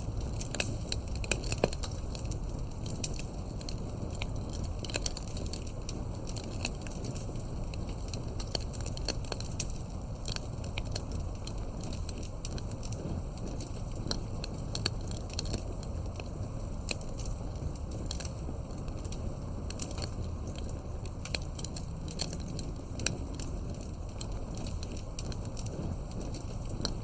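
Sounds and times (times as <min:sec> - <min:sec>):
campfire crackling: 0:00.0 - 0:27.0.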